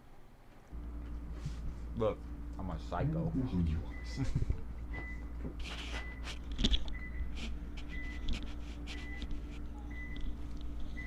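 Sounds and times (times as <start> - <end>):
steady low hum: 0.3 - 11.0.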